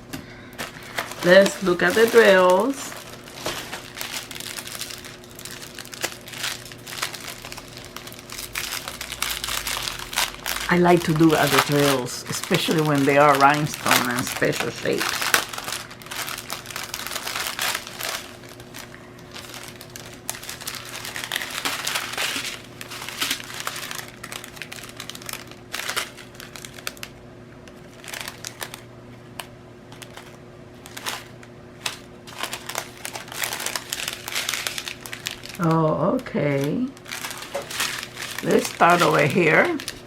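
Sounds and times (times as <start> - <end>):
plastic packets crinkling: 0.4 - 40.0.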